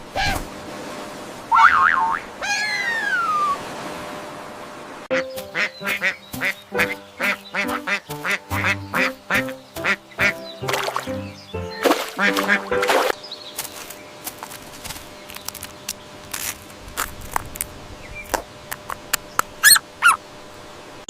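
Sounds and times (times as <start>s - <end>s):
falling whistle-like glide: 2.5s - 3.6s
duck quacking: 5.1s - 12.9s
light background tune: 5.1s - 13.2s.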